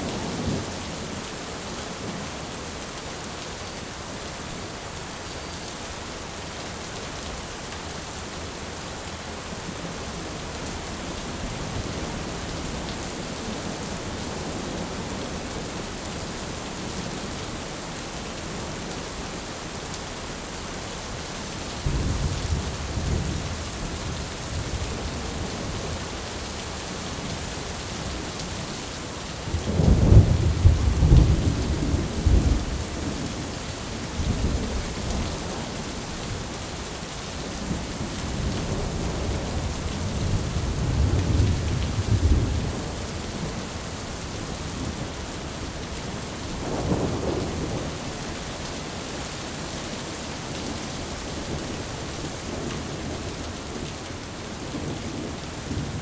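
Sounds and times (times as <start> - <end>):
rain on a tin roof: 0.0 - 56.0.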